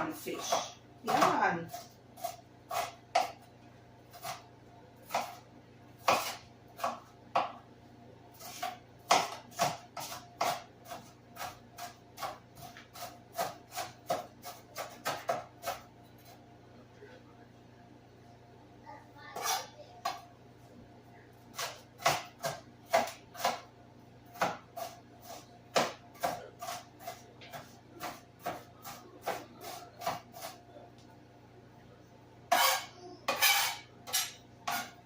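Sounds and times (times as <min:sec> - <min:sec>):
knife chopping on cutting board: 0:00.3 - 0:03.4, 0:04.1 - 0:04.4, 0:05.0 - 0:05.4, 0:06.0 - 0:07.6, 0:08.4 - 0:16.3, 0:21.5 - 0:23.7, 0:24.3 - 0:30.6, 0:32.5 - 0:35.0.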